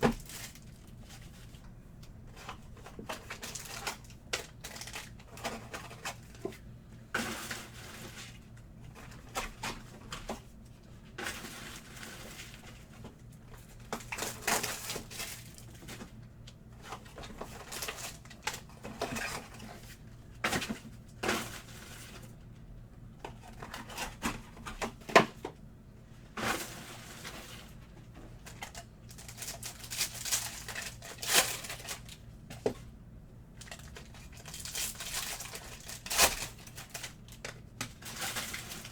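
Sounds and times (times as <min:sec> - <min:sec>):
wrappers tearing and crinkling: 0:00.2 - 0:01.0, 0:03.1 - 0:06.2, 0:28.5 - 0:32.2, 0:33.6 - 0:38.9.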